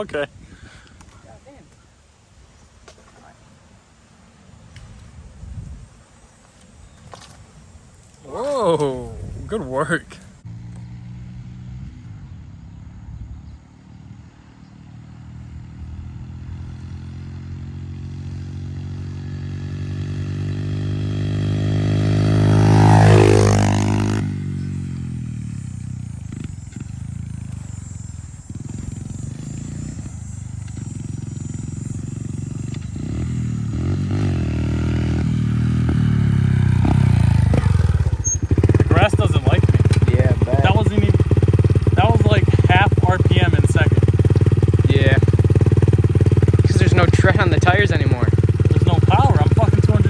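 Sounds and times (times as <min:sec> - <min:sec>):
pit bike engine passing: 0:04.6 - 0:50.0.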